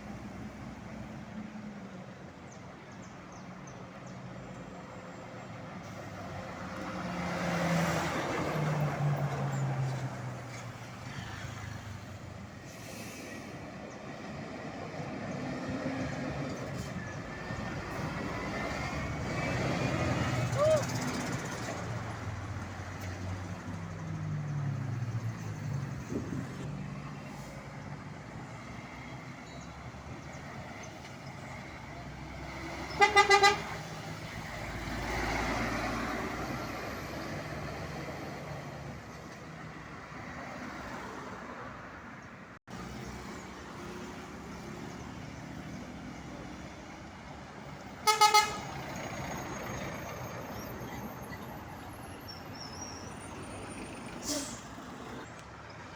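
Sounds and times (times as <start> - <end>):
traffic noise: 0.0 - 55.9
truck engines running: 0.0 - 55.9
truck horn blast: 32.9 - 33.9, 48.0 - 48.8.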